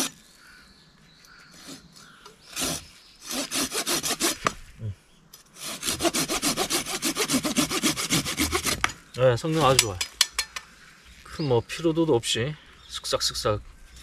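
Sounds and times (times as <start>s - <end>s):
hand saw cutting wood: 2.5s - 4.6s, 5.6s - 9.0s.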